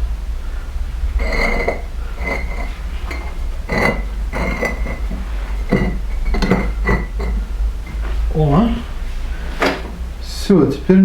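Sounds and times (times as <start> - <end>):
steady low hum: 0.0 - 11.0
bricks knocking together: 1.2 - 8.2.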